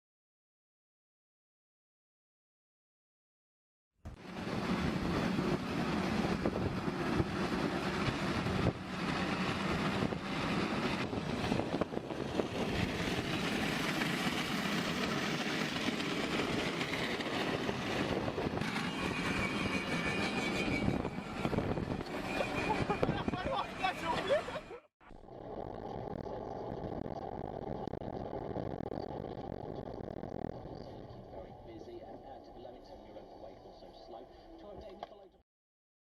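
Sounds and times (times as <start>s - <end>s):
vehicle road and engine noise: 4.1s - 24.6s.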